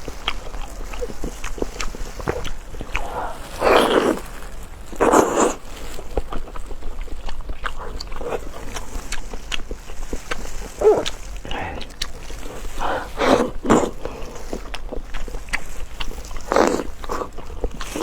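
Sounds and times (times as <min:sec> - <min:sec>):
wet chewing and mouth smacking: 0:00.0 - 0:18.0
louder noisy mouth sounds: 0:05.0 - 0:05.7, 0:10.7 - 0:14.4.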